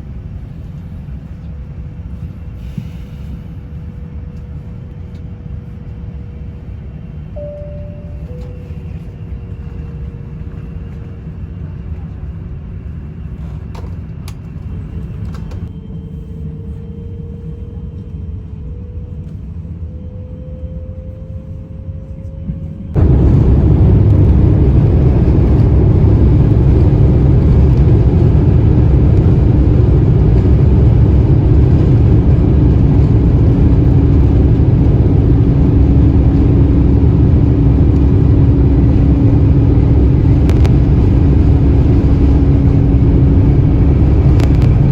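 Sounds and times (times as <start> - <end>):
faint engine whine: 0.0 - 44.9
jet engine rumble: 0.0 - 44.9
steady hum: 22.9 - 44.9.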